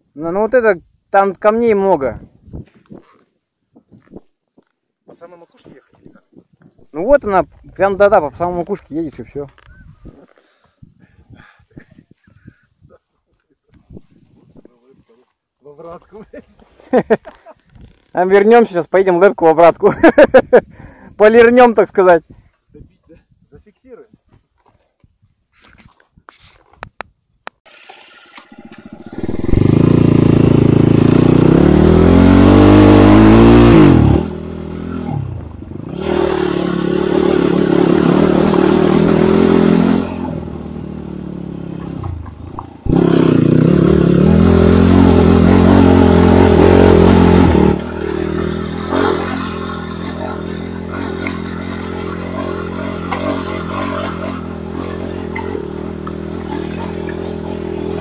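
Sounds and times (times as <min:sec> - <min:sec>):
dirt bike engine revving: 0:28.5 - 0:58.0.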